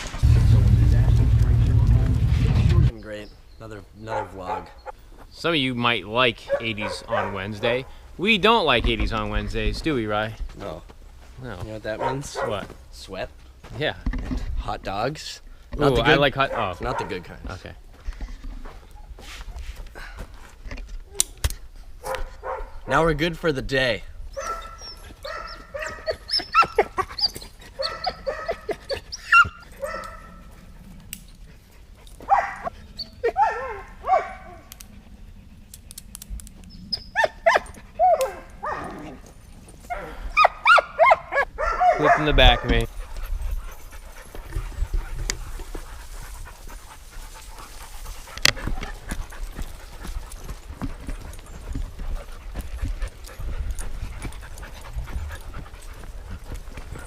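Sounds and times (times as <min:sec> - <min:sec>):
dog whining: 0:24.3 - 0:30.2
dog panting: 0:41.3 - 0:57.0.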